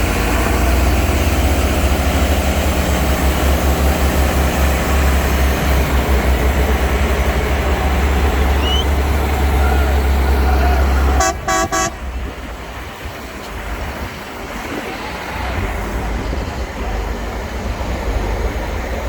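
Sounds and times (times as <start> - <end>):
rumbling vehicle noise: 0.0 - 19.0
short horn toots: 9.6 - 12.0.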